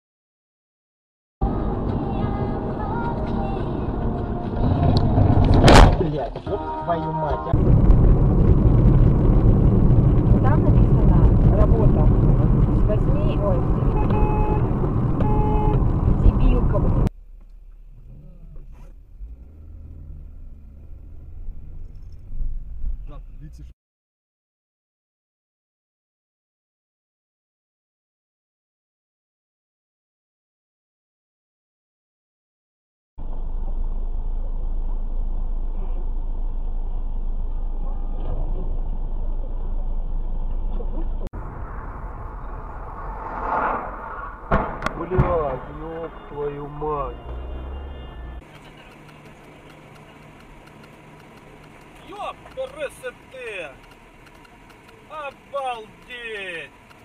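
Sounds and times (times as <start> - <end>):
road vehicle rumble: 1.4 - 23.7, 33.2 - 57.0
sharp collision bangs: 41.4 - 47.5.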